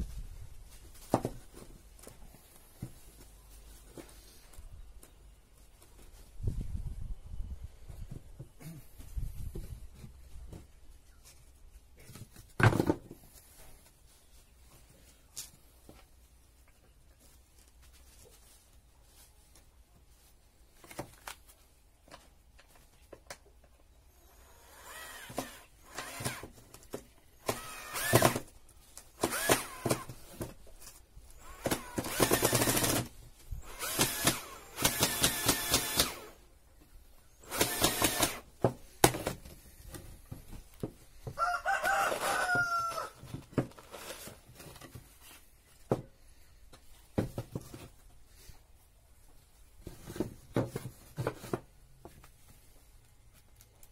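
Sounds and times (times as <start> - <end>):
bursts of work noise: 24.1 - 26.6, 27.4 - 30.5, 31.3 - 36.5, 37.4 - 39.4
rooster crowing: 41.4 - 43.2.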